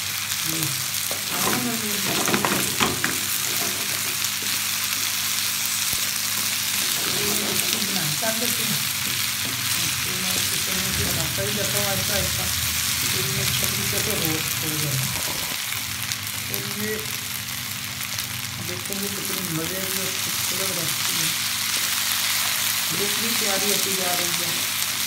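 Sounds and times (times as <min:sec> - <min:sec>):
potatoes and onions sizzling in pan: 0:00.0 - 0:25.0
wooden spatula turning food: 0:01.0 - 0:11.8.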